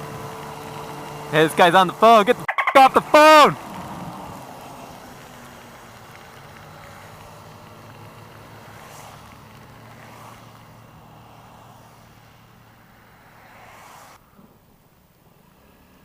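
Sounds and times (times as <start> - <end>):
scooter engine running: 0.0 - 11.3
wind and rain on microphone: 3.6 - 8.0.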